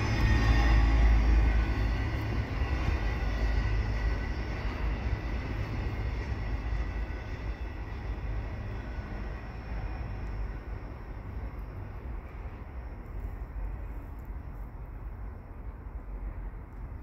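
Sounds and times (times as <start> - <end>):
train wheels rumbling over rails: 0.0 - 17.0.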